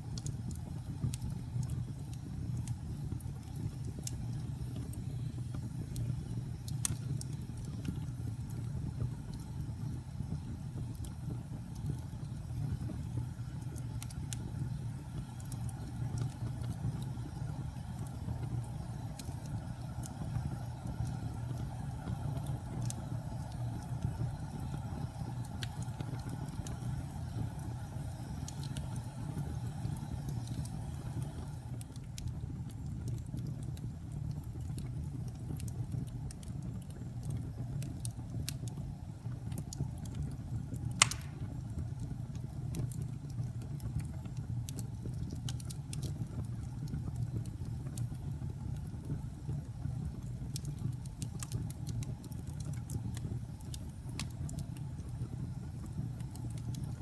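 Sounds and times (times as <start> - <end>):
fire rumbling and crackling: 0.0 - 57.0
loud fire pop: 41.0 - 41.7.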